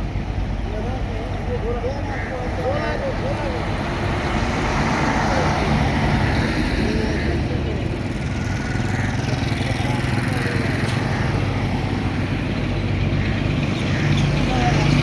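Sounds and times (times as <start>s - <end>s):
road traffic engines: 0.0s - 15.0s.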